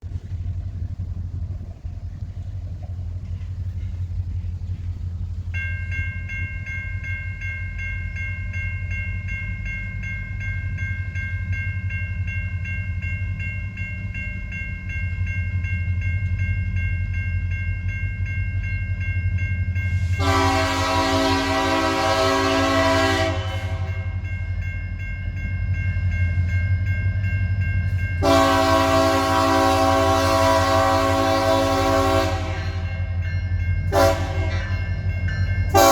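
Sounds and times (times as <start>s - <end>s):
diesel locomotive rumbling: 0.0s - 35.9s
locomotive horn blast: 20.0s - 24.2s, 28.2s - 33.2s, 33.9s - 34.8s, 35.7s - 35.9s.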